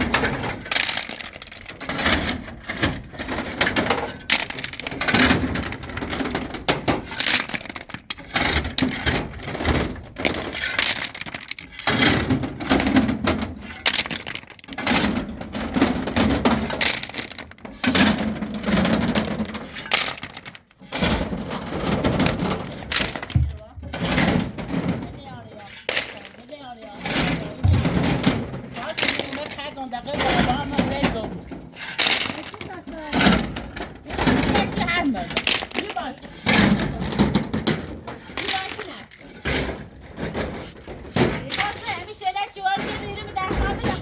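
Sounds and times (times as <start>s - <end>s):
stones clattering: 25.5s - 44.0s.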